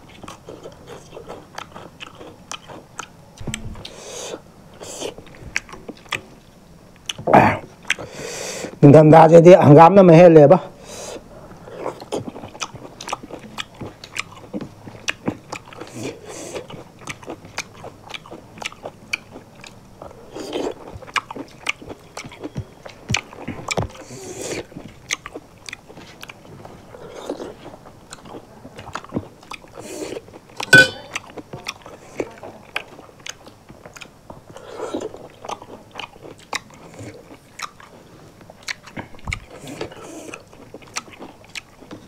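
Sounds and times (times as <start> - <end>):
chewing and lip-smacking: 0.0 - 8.1, 11.6 - 42.0
metal plate clink: 30.7 - 31.1.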